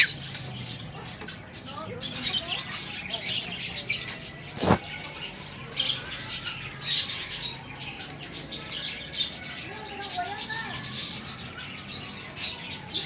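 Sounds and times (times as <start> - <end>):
bird squawks and chirps: 0.0 - 7.6.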